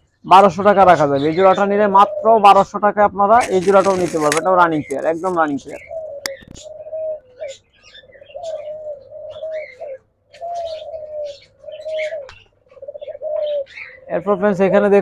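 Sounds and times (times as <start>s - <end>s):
doves cooing: 0.4s - 15.0s
faint high bird chirps: 5.7s - 14.2s.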